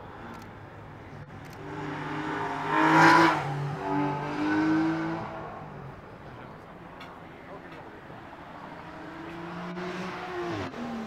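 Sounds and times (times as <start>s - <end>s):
car engine accelerating past: 1.6s - 5.5s.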